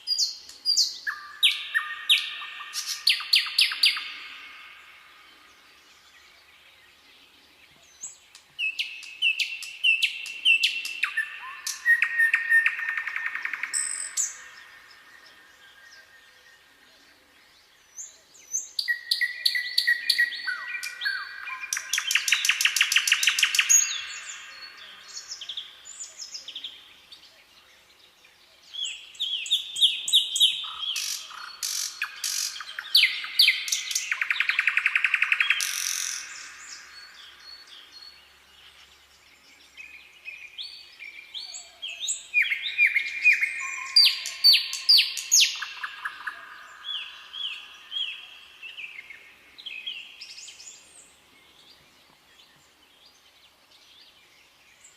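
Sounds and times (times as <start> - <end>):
songbirds singing: 0.0 - 54.9.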